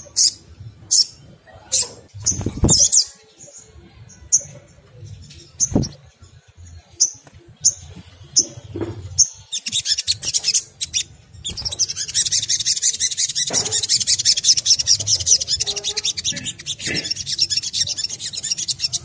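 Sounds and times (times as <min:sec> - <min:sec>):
sunbird chirping: 0:09.2 - 0:19.0.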